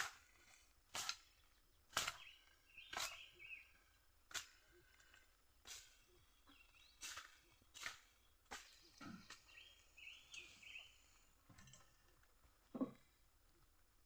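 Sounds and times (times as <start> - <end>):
hoe striking into soil: 0.0 - 0.3, 1.9 - 3.5
faint bird chirps: 1.3 - 4.0, 6.0 - 11.9.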